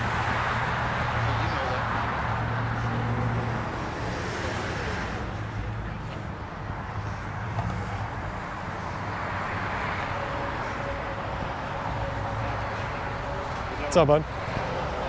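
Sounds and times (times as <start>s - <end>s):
car engine humming: 0.0s - 15.0s
road traffic noise: 0.0s - 15.0s.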